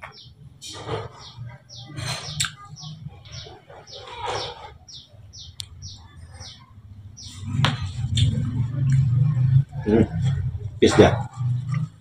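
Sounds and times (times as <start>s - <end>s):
small bird chirping: 0.0s - 8.5s.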